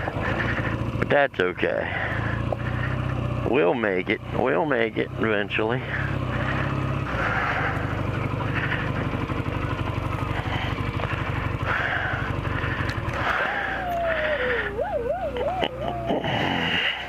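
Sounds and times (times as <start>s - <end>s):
motorcycle engine running: 0.0s - 17.0s
high tone gliding downward: 13.4s - 16.9s.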